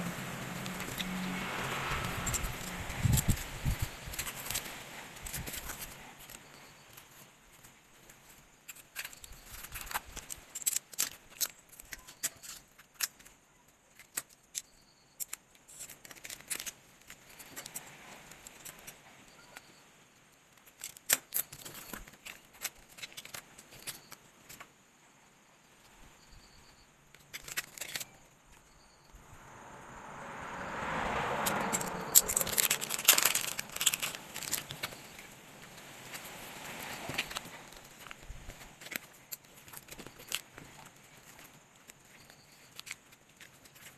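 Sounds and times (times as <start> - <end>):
paper rustling: 31.7 - 43.9
plastic packaging crinkling: 31.7 - 43.9.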